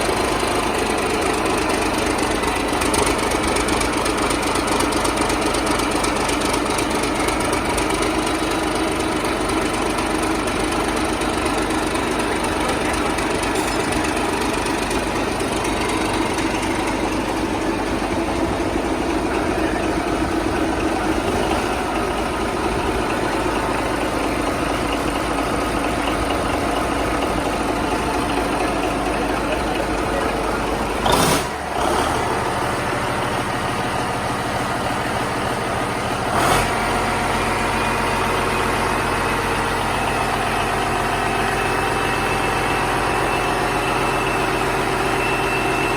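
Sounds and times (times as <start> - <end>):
marine diesel engine running: 0.0 - 45.9
loud burst of noise: 12.1 - 32.9.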